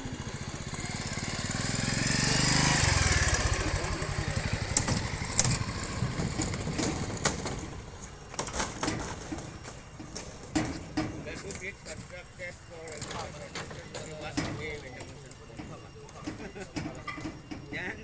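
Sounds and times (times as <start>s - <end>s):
small engine passing by: 0.0s - 9.9s
sharp knocks and clicks: 4.6s - 11.7s, 12.9s - 17.9s.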